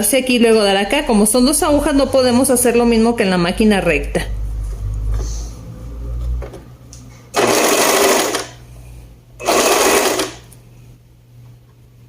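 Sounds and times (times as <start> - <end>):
sewing machine stitching: 7.4 - 8.6, 9.4 - 10.5.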